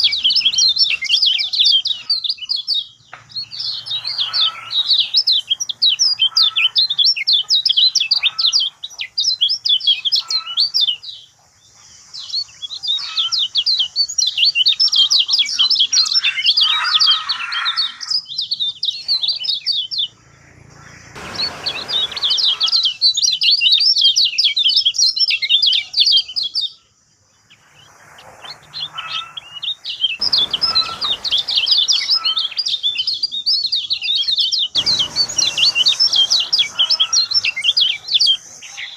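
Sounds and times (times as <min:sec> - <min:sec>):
bird twittering song: 0:00.0 - 0:38.9
brief rushes of noise: 0:20.2 - 0:22.9.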